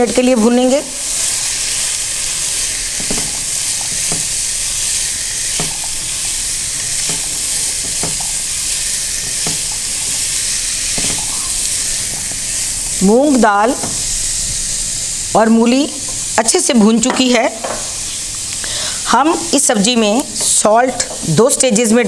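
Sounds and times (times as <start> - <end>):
vegetables sizzling in a pan: 0.0 - 22.0
spatula scraping a pan: 1.1 - 12.7.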